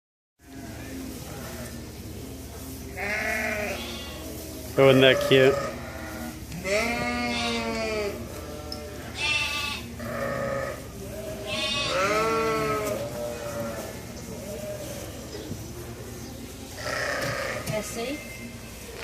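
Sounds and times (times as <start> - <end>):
sheep bleating: 3.0 - 4.2, 4.9 - 15.2, 16.8 - 17.6.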